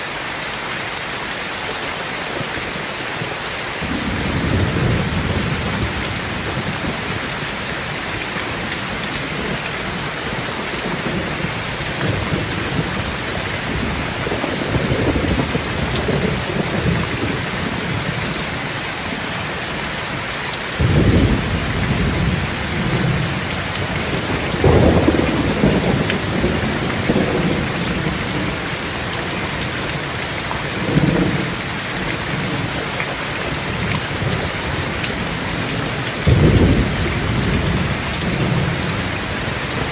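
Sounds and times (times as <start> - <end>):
heavy rain hiss: 0.0 - 39.9
thunder rumbling: 3.8 - 19.2, 20.8 - 39.9.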